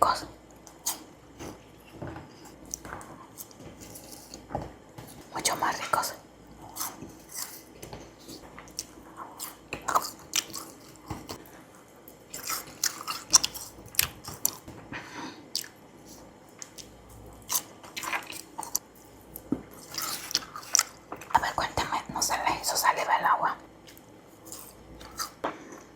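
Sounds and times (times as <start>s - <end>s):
person chewing crunchy food: 0.7s - 5.3s, 6.4s - 11.5s, 12.1s - 14.8s, 15.4s - 21.6s, 23.8s - 25.5s.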